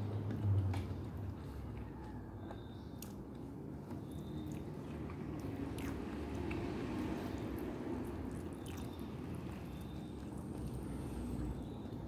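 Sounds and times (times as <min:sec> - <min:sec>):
wet chewing: 0:04.1 - 0:11.5.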